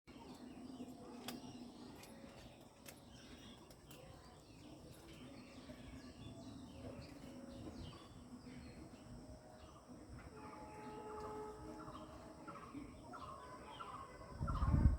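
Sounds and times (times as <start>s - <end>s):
small birds chirping: 0.1s - 10.1s.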